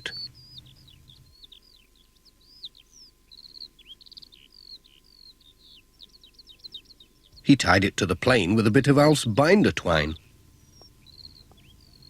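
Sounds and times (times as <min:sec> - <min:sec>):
birds chirping and whistling: 0:00.0 - 0:12.0.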